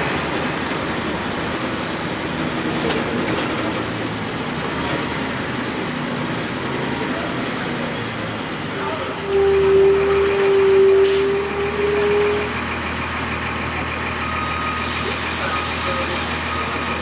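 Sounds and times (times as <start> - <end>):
diesel bus engine running: 0.0 - 17.0
air hissing from bus: 10.9 - 11.4, 14.7 - 17.0.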